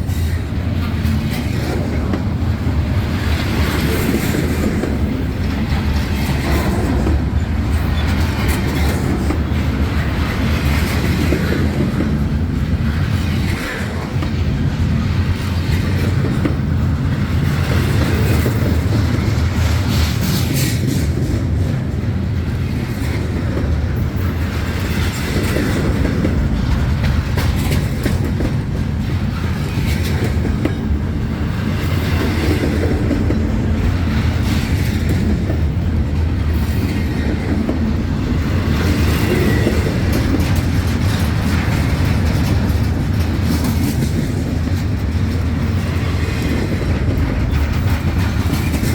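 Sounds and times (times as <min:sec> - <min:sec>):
freight train rumbling: 0:00.0 - 0:48.9
wheels clicking over rail joints: 0:00.0 - 0:48.9.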